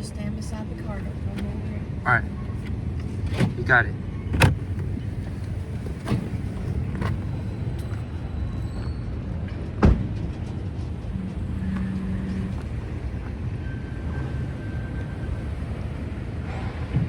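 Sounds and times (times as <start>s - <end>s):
idling vehicles rumble: 0.0s - 17.0s.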